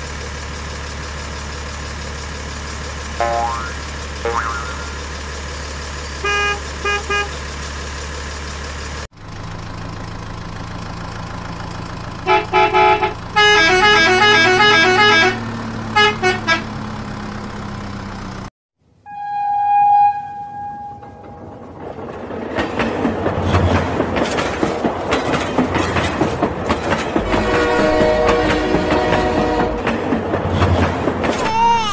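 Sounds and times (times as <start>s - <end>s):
electronic horn beeps: 6.2s - 7.4s, 12.3s - 15.4s, 16.0s - 16.7s, 19.0s - 21.3s
toy train clattering on track: 22.0s - 27.3s.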